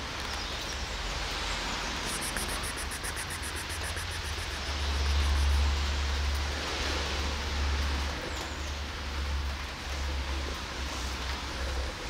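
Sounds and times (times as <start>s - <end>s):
steady rain hissing: 0.0s - 12.0s
fast high-pitched ticking: 2.0s - 5.6s.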